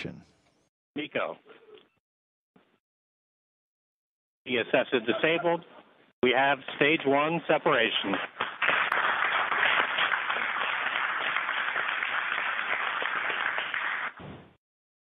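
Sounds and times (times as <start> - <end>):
group of people applauding: 7.7 - 14.2.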